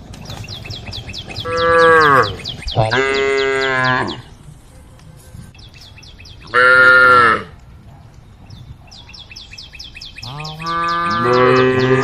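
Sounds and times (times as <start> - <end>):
bird chirping: 0.0 - 6.9, 7.9 - 12.0
cow mooing: 1.4 - 4.3, 6.5 - 7.5, 10.2 - 12.0.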